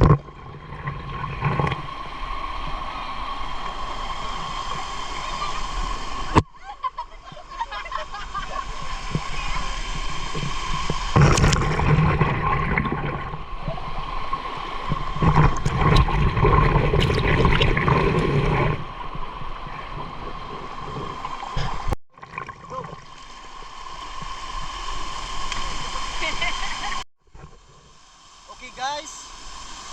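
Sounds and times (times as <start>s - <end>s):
muffled underwater gurgling: 14.8s - 18.9s.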